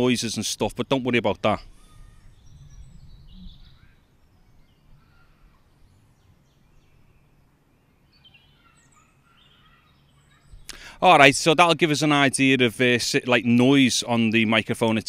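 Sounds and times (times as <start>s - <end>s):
bird chirps: 1.6s - 10.9s.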